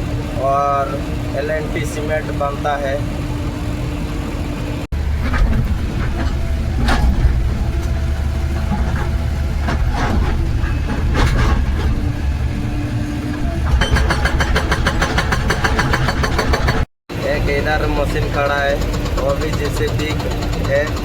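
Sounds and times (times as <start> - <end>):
excavator diesel engine: 0.0 - 21.0
hydraulic breaker hammering: 5.0 - 16.9, 18.2 - 21.0.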